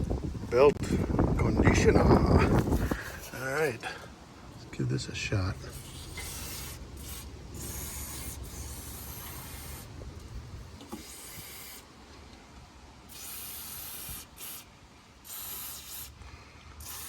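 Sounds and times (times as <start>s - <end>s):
aerosol spray can hissing: 5.7s - 10.0s, 10.9s - 11.9s, 13.1s - 16.2s, 16.8s - 17.0s.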